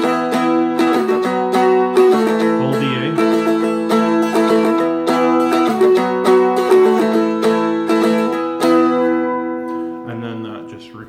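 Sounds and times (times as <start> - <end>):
strummed dulcimer chords: 0.0 - 11.0.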